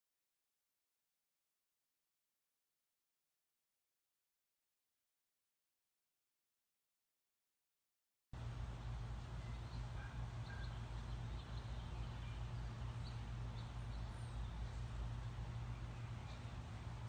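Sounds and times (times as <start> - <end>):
steady low rumble: 8.4 - 17.0
faint bird chirps: 9.4 - 16.8.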